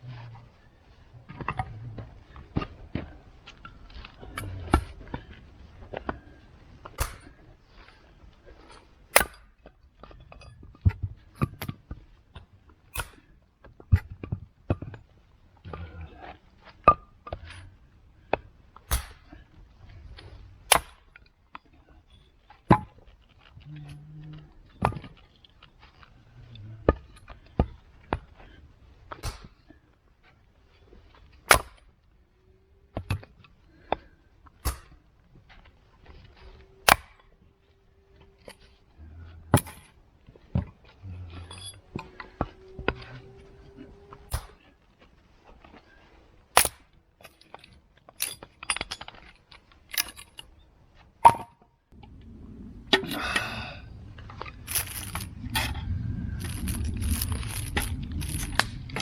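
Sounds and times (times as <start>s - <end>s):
faint low rumble: 0.0s - 8.4s, 14.9s - 18.5s, 35.4s - 44.7s, 51.8s - 59.0s.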